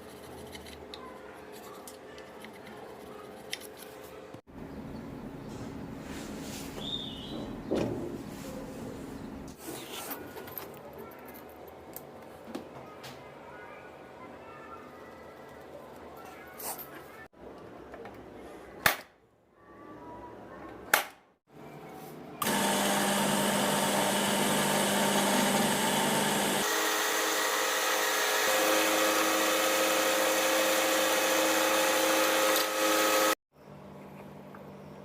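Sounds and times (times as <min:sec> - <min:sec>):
small electric power tool running: 0:22.4 - 0:33.4.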